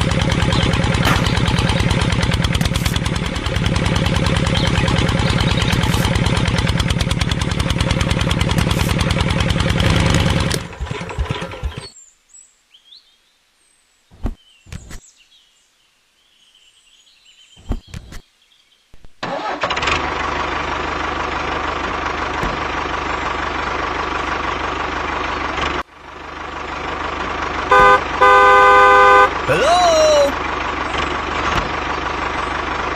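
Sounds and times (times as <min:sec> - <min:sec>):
toy tractor engine running: 0:00.0 - 0:11.8.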